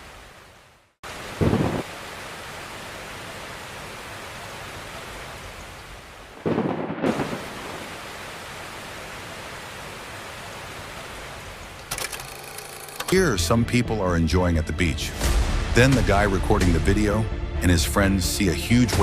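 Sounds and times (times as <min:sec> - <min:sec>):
heavy rain hissing: 0:00.0 - 0:11.8
thunder crack: 0:01.4 - 0:01.9, 0:06.4 - 0:07.9.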